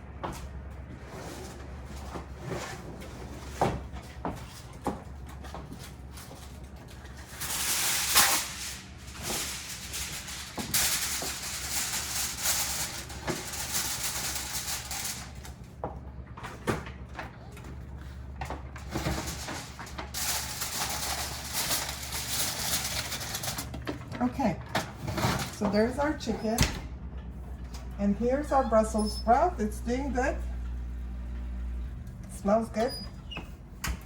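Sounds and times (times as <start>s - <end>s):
aluminium foil crinkling: 6.1s - 15.6s, 18.8s - 23.8s.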